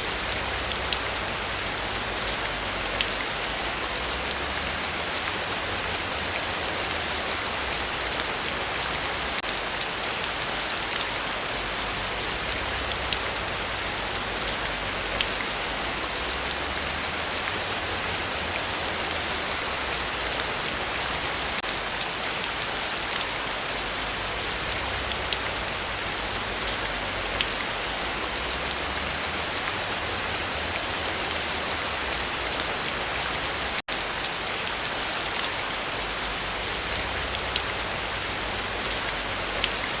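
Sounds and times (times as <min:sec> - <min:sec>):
raindrops ticking: 0:12.0 - 0:21.7.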